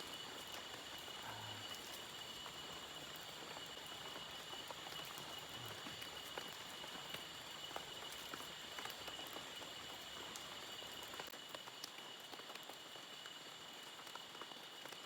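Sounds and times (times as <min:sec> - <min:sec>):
crickets droning: 0:00.0 - 0:11.2
light rain drops ticking: 0:00.0 - 0:15.0.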